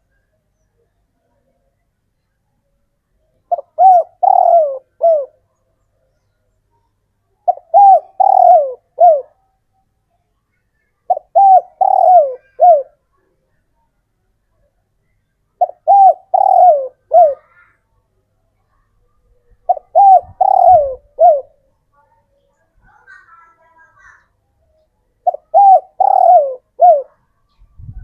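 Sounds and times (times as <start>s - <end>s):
dove cooing: 3.5s - 5.4s, 7.4s - 9.4s, 11.1s - 13.0s, 15.6s - 17.6s, 19.7s - 21.6s, 25.2s - 27.2s.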